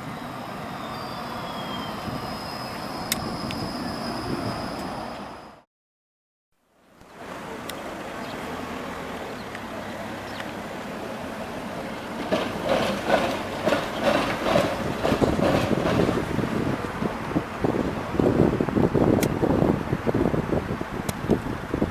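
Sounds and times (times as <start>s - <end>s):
tram rolling rumble: 0.0s - 5.6s, 7.2s - 21.9s
wheels clacking over rail joints: 9.5s - 18.4s.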